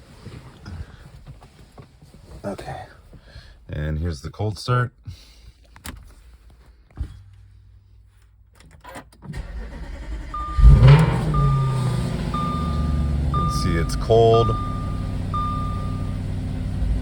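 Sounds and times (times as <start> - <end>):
starter motor cranking: 9.3 - 12.5
car engine idling: 9.4 - 17.0
car warning chime beeping: 9.7 - 17.0.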